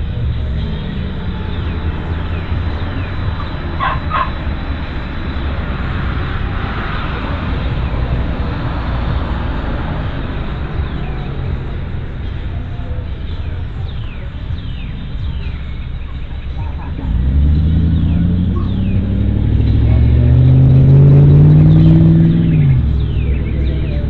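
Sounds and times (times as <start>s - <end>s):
steady low rumble: 0.0s - 24.0s
dog barking: 3.8s - 4.4s.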